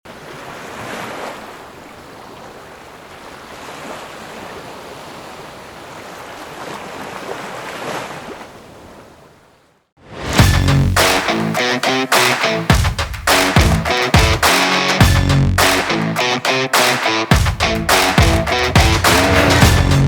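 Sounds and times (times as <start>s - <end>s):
wind: 0.0s - 10.0s
rushing water: 0.1s - 8.9s.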